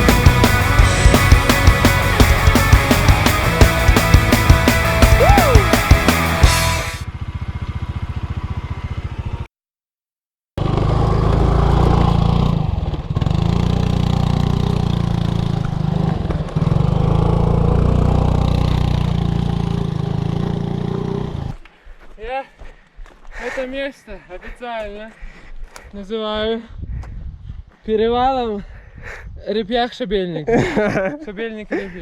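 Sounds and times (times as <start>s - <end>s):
music: 0.0s - 7.0s
motorcycle engine running: 0.0s - 9.5s, 10.6s - 21.6s.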